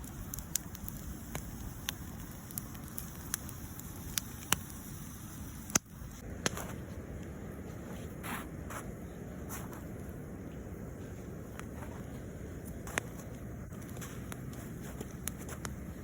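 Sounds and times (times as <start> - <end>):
sharp pops of fire: 0.0 - 7.4, 11.3 - 16.0
campfire crackling: 0.0 - 16.0.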